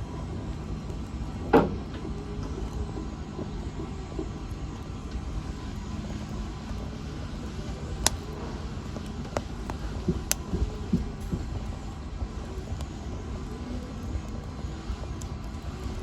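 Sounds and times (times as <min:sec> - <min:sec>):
fire crackling and popping: 0:04.1 - 0:16.0.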